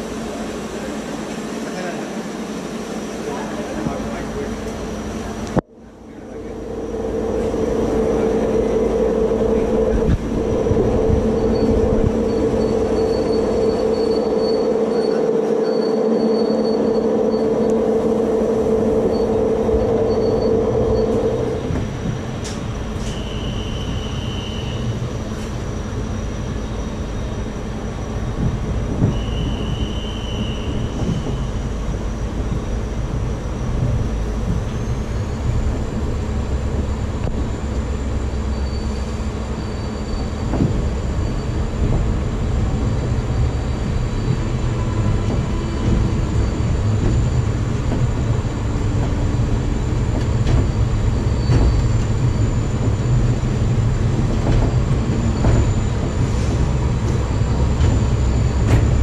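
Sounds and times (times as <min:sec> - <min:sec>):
train coaches rumbling and rattling: 0:00.0 - 0:59.0
steady high tone: 0:05.8 - 0:21.7.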